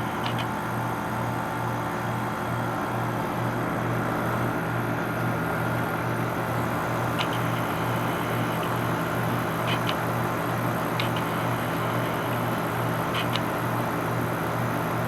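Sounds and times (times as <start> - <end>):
condenser fan air noise: 0.0 - 15.0.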